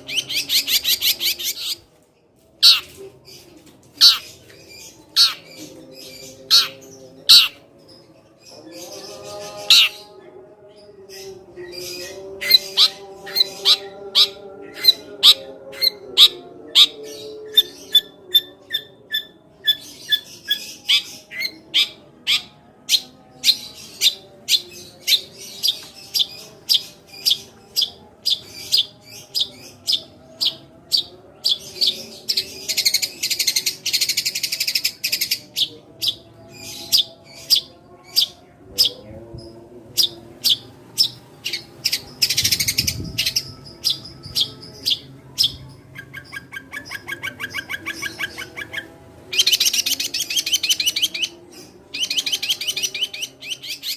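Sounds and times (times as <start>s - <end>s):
sparrow chirps: 0.0s - 1.9s, 2.6s - 10.2s, 10.9s - 53.9s
rapid bird chattering: 6.5s - 7.6s.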